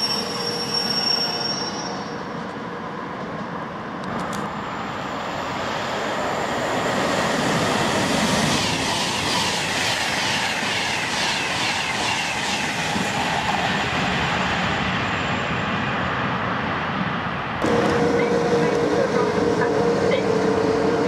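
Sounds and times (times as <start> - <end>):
express train rushing past: 0.0 - 21.0.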